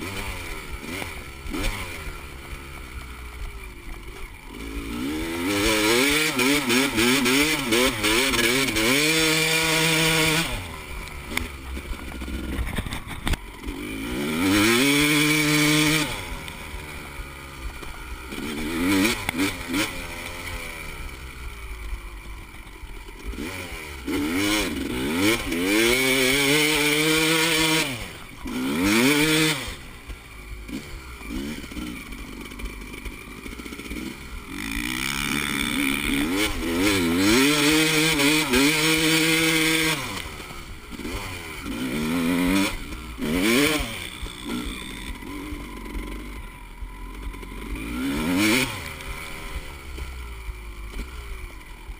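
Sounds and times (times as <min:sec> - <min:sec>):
dirt bike engines revving: 0:00.0 - 0:51.9.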